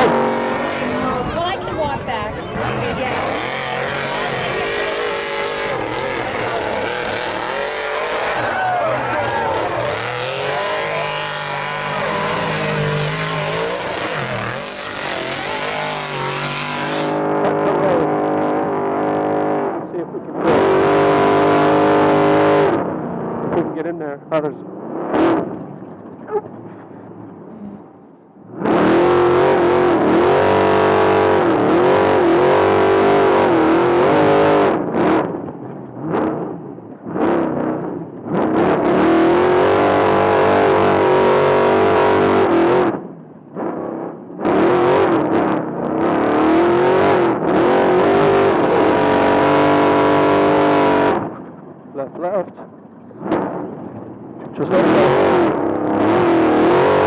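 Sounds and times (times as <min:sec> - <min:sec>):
truck engine revving: 0:00.0 - 0:17.3, 0:28.5 - 0:35.3, 0:38.2 - 0:43.0, 0:46.0 - 0:51.3, 0:54.9 - 0:57.0.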